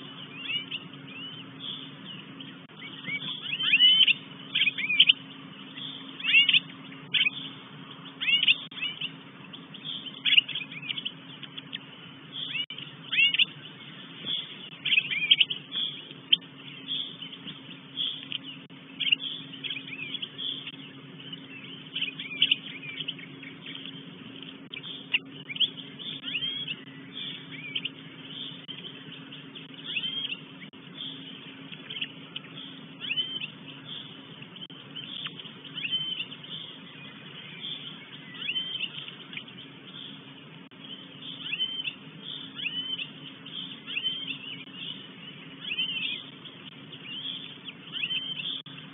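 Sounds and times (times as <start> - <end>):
short high-pitched bird calls: 0.0 - 9.2, 12.3 - 17.4, 24.7 - 28.8, 29.7 - 34.2, 34.9 - 40.1, 40.9 - 45.0, 47.0 - 48.7
faint steady hum: 0.0 - 48.9.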